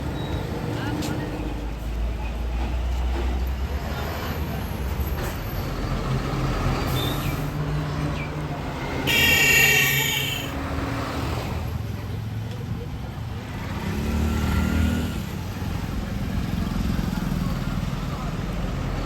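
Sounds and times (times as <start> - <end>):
heavy vehicle engines: 0.0 - 19.0
vehicle horn: 9.0 - 10.6.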